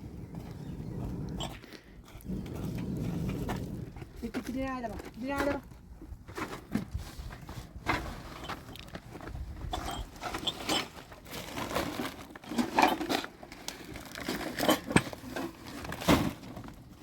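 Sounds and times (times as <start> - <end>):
rustling of handling: 4.1 - 17.0.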